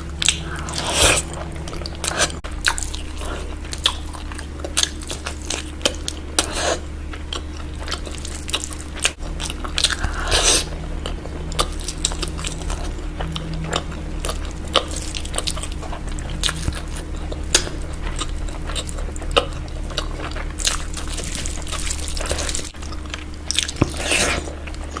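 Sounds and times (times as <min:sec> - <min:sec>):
faint low hum: 0:00.0 - 0:25.0
person chewing food: 0:00.0 - 0:25.0.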